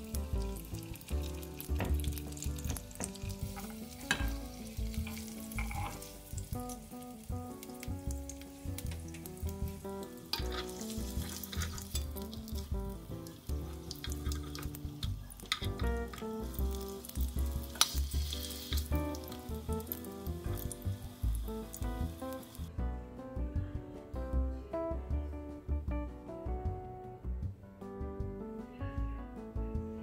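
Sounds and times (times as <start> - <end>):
skewers sizzling in frying pan: 0.0 - 22.7
background music with low beat: 0.0 - 30.0.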